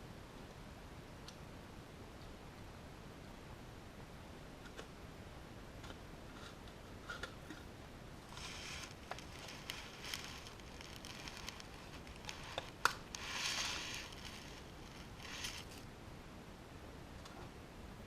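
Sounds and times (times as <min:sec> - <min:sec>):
short scraping rubs: 0:08.3 - 0:15.8.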